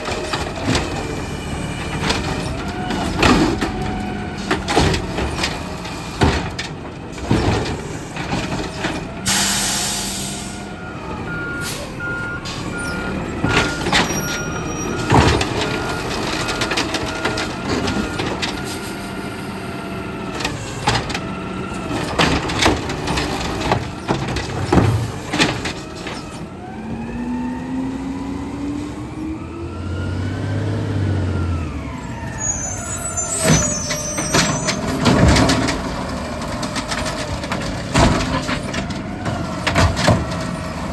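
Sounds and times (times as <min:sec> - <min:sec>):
garbage truck engine revving: 0:00.0 - 0:40.9
air brake hiss: 0:09.3 - 0:10.7.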